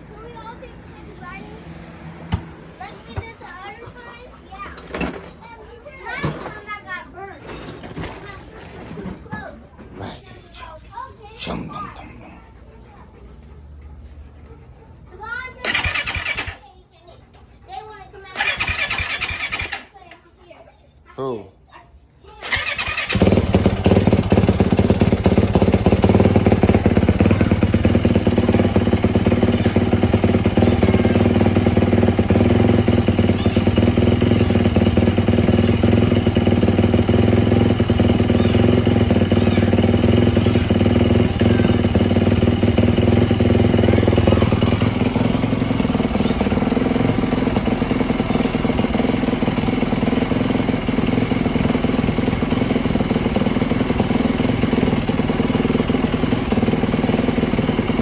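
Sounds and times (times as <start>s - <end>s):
small motorcycle engine running: 12.6s - 16.7s, 18.3s - 20.2s, 22.4s - 58.0s.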